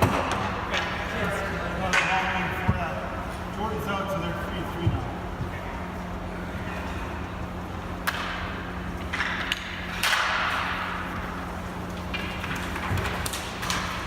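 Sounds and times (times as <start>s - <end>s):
steady low hum: 0.0s - 14.0s
hockey sticks knocking ball: 8.0s - 11.0s.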